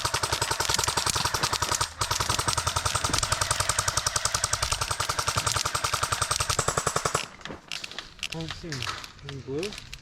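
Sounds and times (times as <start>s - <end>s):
paintball marker rapid firing: 0.0s - 7.4s.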